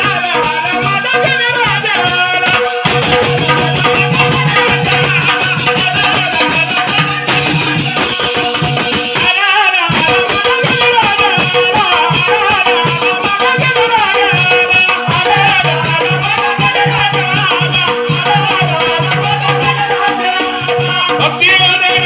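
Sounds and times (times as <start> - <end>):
jingling hand cymbals: 0.0 - 22.0
repeating drum beat: 0.0 - 22.0.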